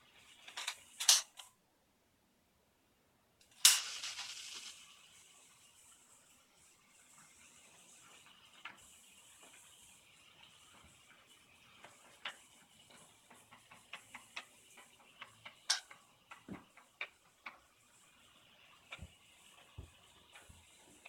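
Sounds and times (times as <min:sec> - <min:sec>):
toy train pieces clicking: 0:00.4 - 0:01.5, 0:03.4 - 0:05.0, 0:11.7 - 0:19.7.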